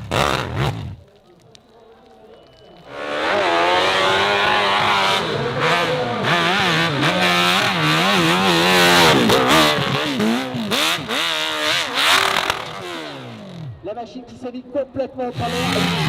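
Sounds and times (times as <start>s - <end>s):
motocross bike engine revving: 0.0s - 1.0s, 2.8s - 13.8s, 15.3s - 16.0s.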